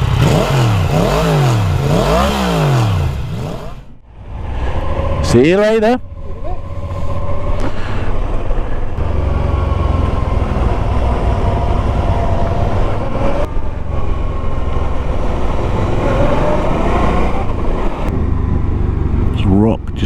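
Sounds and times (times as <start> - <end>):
motorcycle engine running: 0.0 - 4.0.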